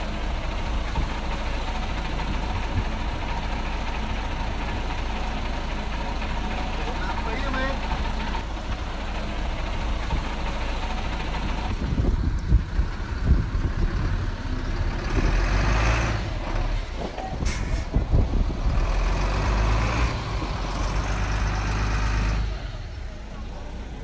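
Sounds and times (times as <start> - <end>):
heavy diesel engine under load: 0.0 - 24.0.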